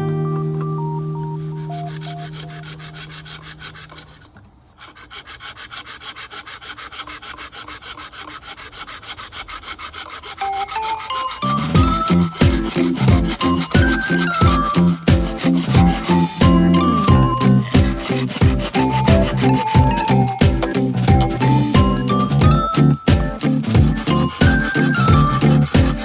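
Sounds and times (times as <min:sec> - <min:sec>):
music chord: 0:00.0 - 0:03.3
fast even rasping: 0:01.3 - 0:26.0.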